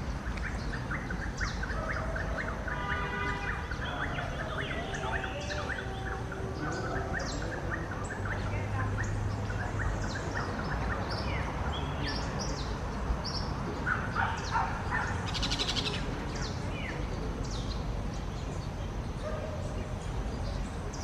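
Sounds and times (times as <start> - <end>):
birds chirping and whistling: 0.4 - 17.8.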